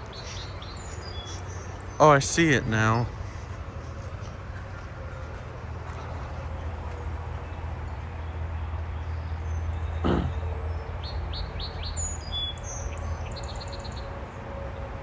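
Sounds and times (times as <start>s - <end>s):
sparrow singing: 0.0s - 5.5s, 9.1s - 14.1s.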